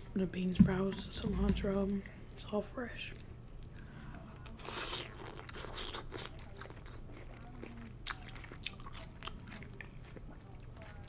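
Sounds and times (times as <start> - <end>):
close chewing with crunches: 0.8 - 11.0.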